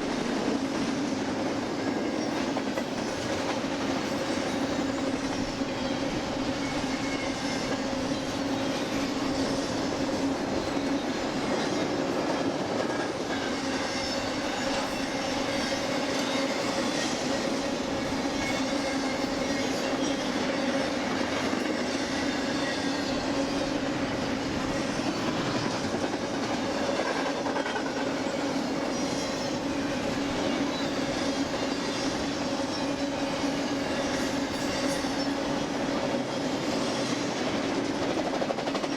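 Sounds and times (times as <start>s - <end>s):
freight train wheels clattering: 0.0s - 38.9s
low train rumble and hum: 0.0s - 38.9s
high wheel squeal: 4.2s - 12.0s, 13.0s - 25.8s, 28.3s - 35.7s.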